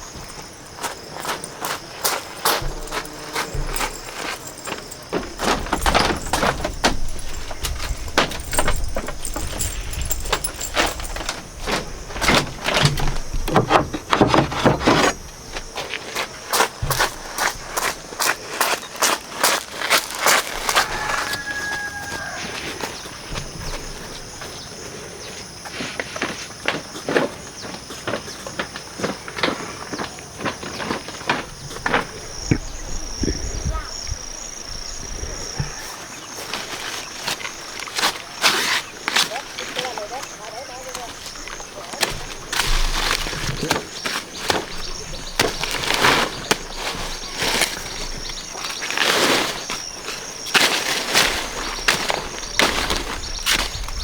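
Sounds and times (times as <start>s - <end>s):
irregular clicks and crunches: 0.0s - 21.7s, 35.5s - 54.0s
rustling and scraping: 0.0s - 25.1s, 25.7s - 54.0s
high insect drone: 0.0s - 54.0s.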